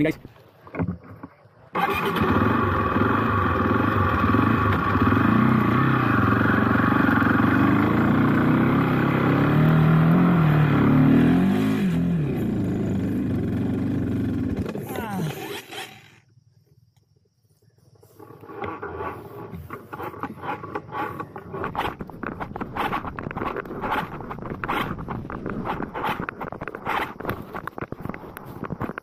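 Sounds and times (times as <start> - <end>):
motorcycle engine revving: 1.8 - 16.3, 18.2 - 27.8.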